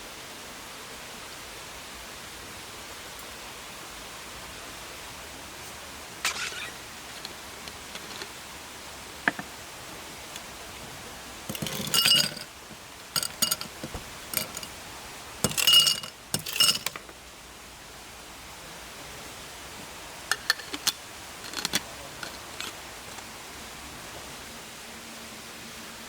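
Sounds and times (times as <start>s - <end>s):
steady hiss: 0.0s - 26.0s
metal and glass clinking: 11.5s - 14.8s, 15.4s - 17.1s.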